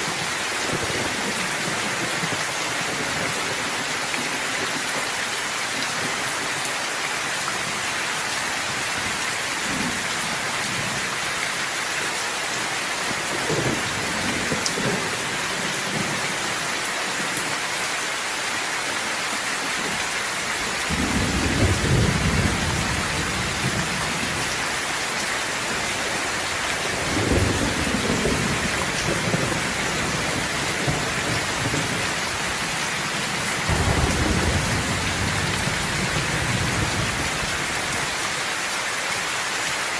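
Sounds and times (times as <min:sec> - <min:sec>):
steady rain: 0:00.0 - 0:39.9
thunder rolling: 0:13.3 - 0:16.2, 0:20.8 - 0:24.6, 0:25.8 - 0:32.2, 0:33.2 - 0:37.4.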